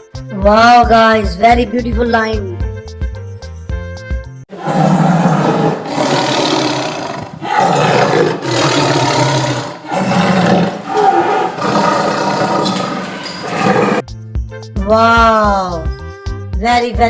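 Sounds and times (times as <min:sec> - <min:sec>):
lion roaring: 0:04.5 - 0:14.0.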